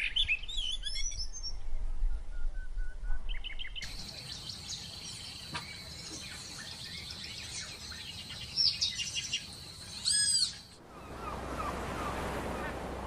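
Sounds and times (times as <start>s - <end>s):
birds chirping and singing: 3.3s - 12.8s.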